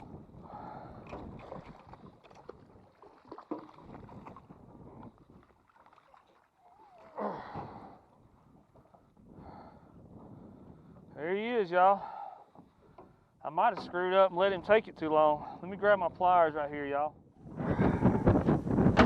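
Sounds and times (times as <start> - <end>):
wind on microphone: 0.0 - 3.1, 3.7 - 5.6, 7.7 - 11.2, 17.2 - 19.0
shallow water splashing: 0.0 - 9.2.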